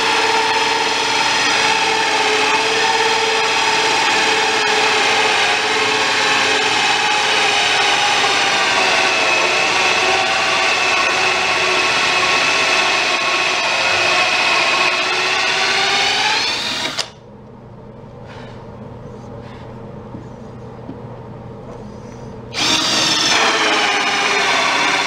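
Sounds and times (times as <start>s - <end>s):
electric drill whining: 0.0s - 17.2s, 22.5s - 25.0s.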